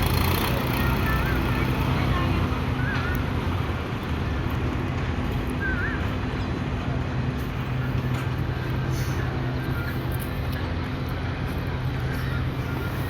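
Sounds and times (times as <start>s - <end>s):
tractor engine idling: 0.0s - 3.3s.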